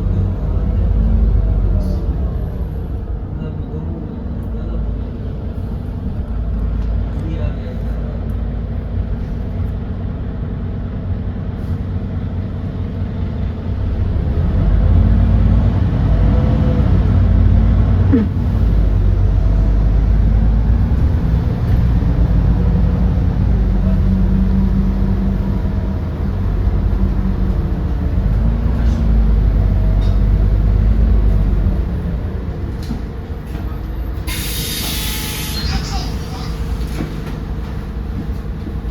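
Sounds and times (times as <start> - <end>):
bus engine accelerating: 0.0 - 38.9.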